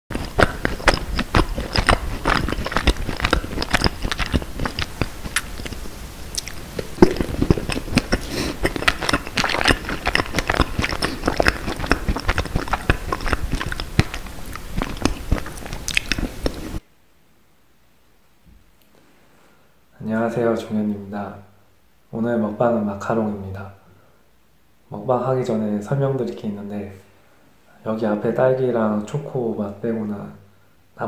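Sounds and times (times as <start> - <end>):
person crunching macarons: 0.1 - 16.8.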